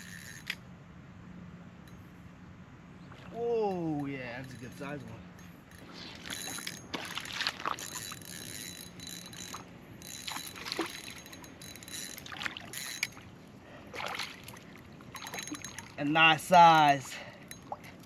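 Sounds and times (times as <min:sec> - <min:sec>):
fishing tackle clicks and rattles: 0:03.7 - 0:13.3, 0:15.1 - 0:16.0.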